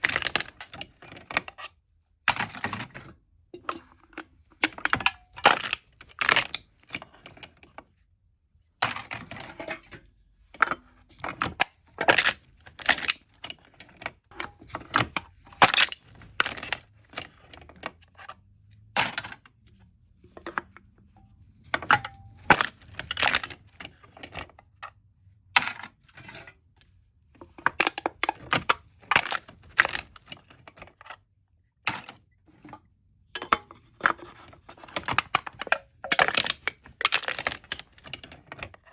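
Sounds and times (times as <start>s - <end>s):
drink cans being crushed: 0.0s - 1.6s, 3.6s - 7.0s, 10.7s - 13.5s, 14.4s - 17.3s, 21.8s - 23.7s, 27.5s - 31.0s, 33.4s - 38.9s.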